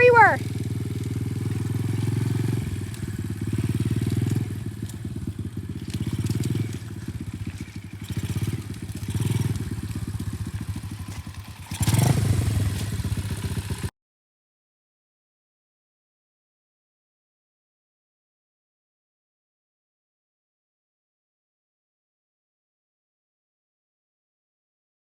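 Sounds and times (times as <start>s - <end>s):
dirt bike engine revving: 0.0s - 13.9s.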